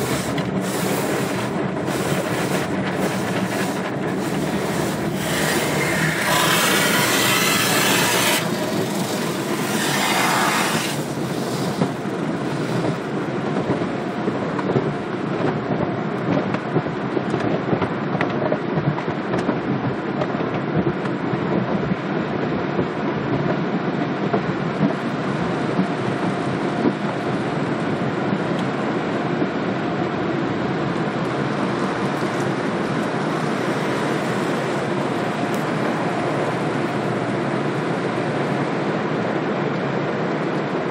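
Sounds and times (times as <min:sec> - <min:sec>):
spraying water hiss: 0:00.0 - 0:12.9
car wash equipment rumble and clatter: 0:00.0 - 0:40.9.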